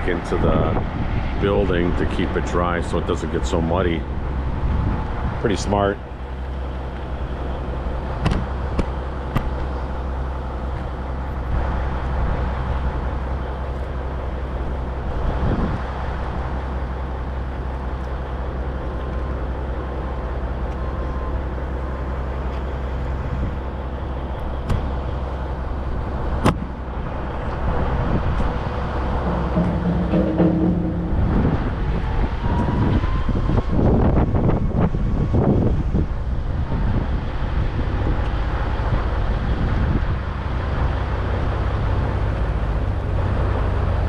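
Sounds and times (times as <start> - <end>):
vehicle engine idling: 0.0 - 44.0
sharp knocks: 29.2 - 32.3.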